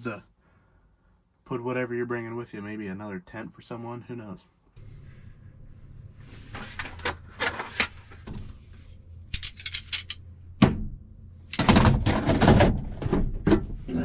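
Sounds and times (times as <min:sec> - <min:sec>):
rustling and clattering: 0:05.7 - 0:14.0.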